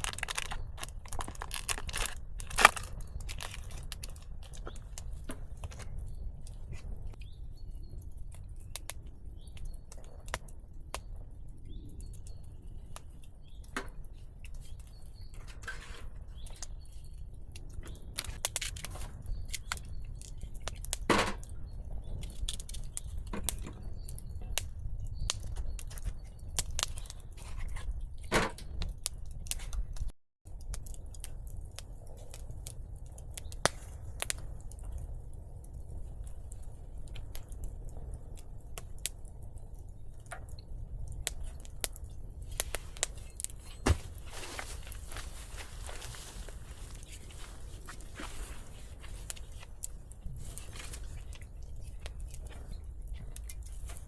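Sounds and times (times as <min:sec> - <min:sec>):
hands handling twigs snapping: 0:00.0 - 0:06.6, 0:17.5 - 0:21.5, 0:41.2 - 0:54.0
birds chirping faintly: 0:02.9 - 0:28.8.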